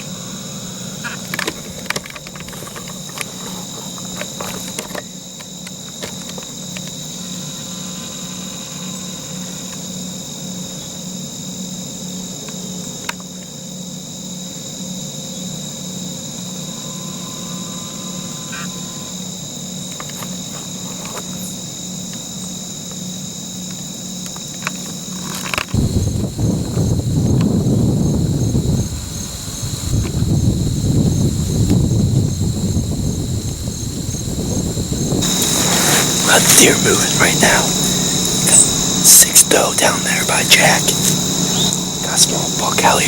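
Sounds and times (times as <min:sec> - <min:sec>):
crickets and insects chirping: 0:00.0 - 0:43.0
low pulsing hum: 0:25.8 - 0:43.0.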